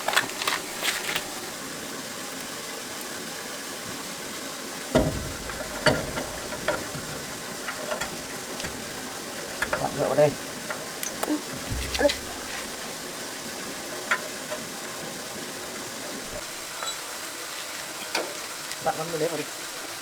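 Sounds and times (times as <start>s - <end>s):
steady hiss: 0.0s - 20.0s
dull thump: 4.9s - 10.0s, 11.5s - 13.0s
tools and metal parts knocking: 4.9s - 13.2s.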